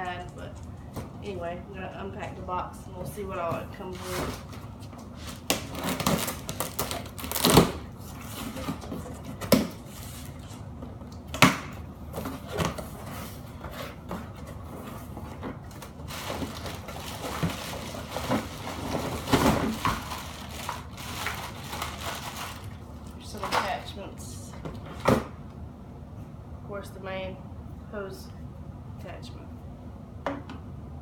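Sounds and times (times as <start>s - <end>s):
cardboard rustling: 12.1s - 22.8s.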